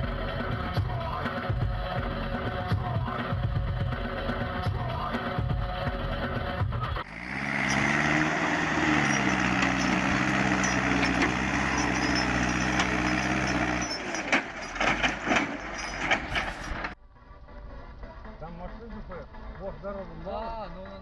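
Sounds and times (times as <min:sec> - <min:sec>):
vehicle engine running: 0:00.0 - 0:17.0
sharp knocks and clatters: 0:09.2 - 0:17.0.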